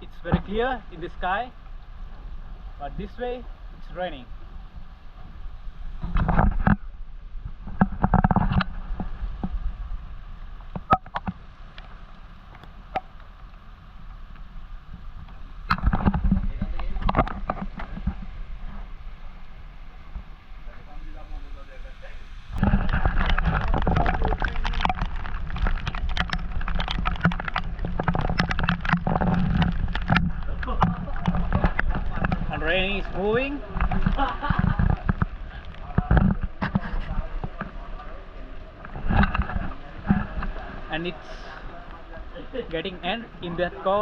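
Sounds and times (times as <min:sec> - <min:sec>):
raindrops tapping hard surfaces: 0:05.9 - 0:19.4, 0:22.6 - 0:44.0
water sloshing against boat hull: 0:22.6 - 0:44.0.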